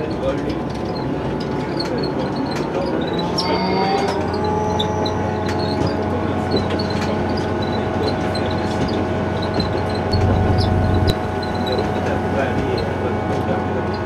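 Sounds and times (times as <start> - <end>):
railcar engine drone with whine: 10.0 - 14.0.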